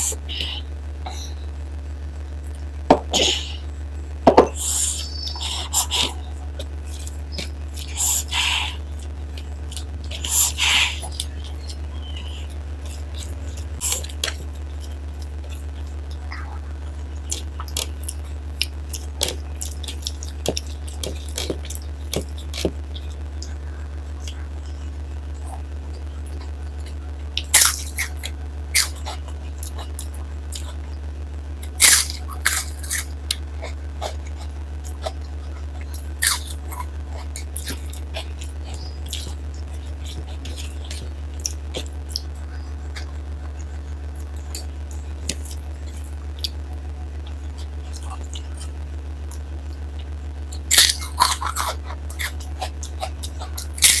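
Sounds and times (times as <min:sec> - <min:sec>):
steady low hum: 0:00.0 - 0:54.0
person chewing and smacking: 0:09.0 - 0:23.6, 0:26.2 - 0:30.8, 0:31.6 - 0:46.6, 0:50.0 - 0:54.0
crunching: 0:31.6 - 0:54.0.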